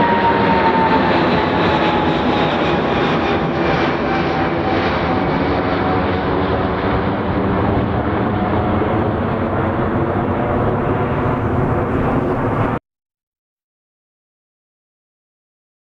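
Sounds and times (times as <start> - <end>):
jet engines rumbling at takeoff: 0.0 - 12.8.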